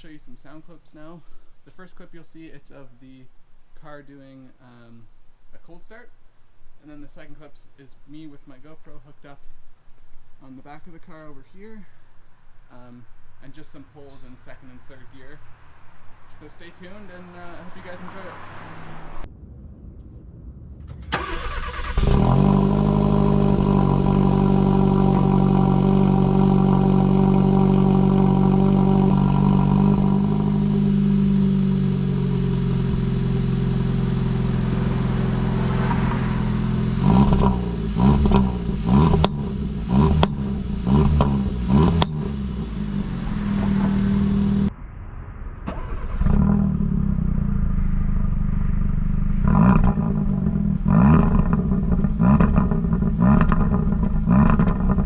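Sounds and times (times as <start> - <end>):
car engine starting and revving: 16.4 - 19.3, 20.9 - 44.7, 45.6 - 55.0
sharp exhaust pops: 20.8 - 44.7, 48.8 - 55.0.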